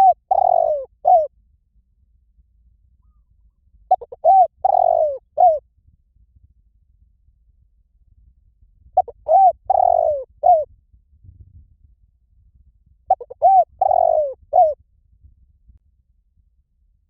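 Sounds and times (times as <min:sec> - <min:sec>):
dove cooing: 0:00.0 - 0:01.3, 0:03.9 - 0:05.6, 0:09.0 - 0:10.7, 0:13.1 - 0:14.8.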